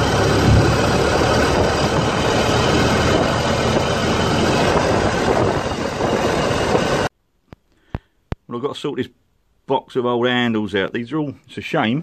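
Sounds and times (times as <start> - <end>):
old vehicle engine running: 0.0 - 7.1.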